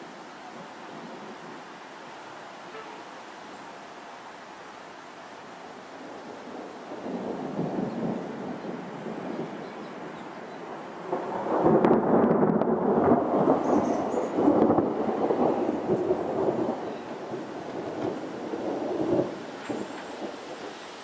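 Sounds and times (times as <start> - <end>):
thunder rumbling: 6.0 - 20.8.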